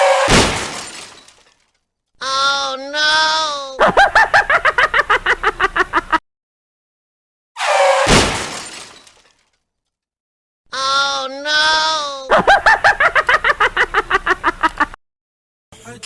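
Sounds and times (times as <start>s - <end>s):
crash with glass shattering: 0.0s - 1.6s, 8.0s - 9.4s.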